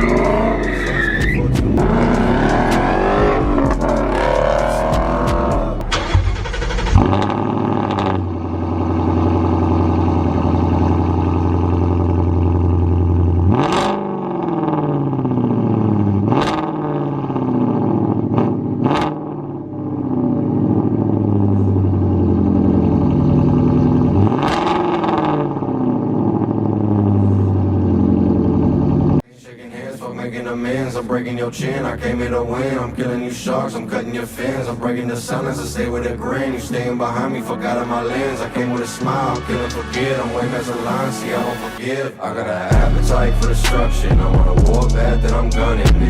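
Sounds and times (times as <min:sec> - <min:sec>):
car engine idling and revving: 0:00.0 - 0:29.2, 0:37.7 - 0:41.8, 0:42.7 - 0:46.0.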